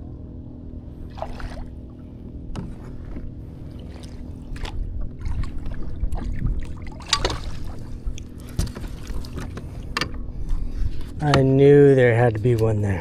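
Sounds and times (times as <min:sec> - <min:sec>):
low steady rumble: 0:00.0 - 0:13.0
water splashing: 0:00.9 - 0:11.6
sharp knocks on kayak: 0:02.5 - 0:03.3, 0:05.5 - 0:10.2.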